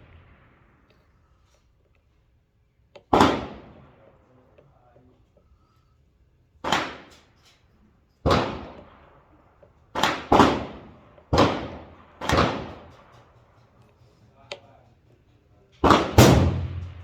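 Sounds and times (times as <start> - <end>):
rifle shots echoing: 3.1 - 3.9, 6.6 - 7.2, 8.3 - 9.2, 9.9 - 13.2, 15.8 - 17.0.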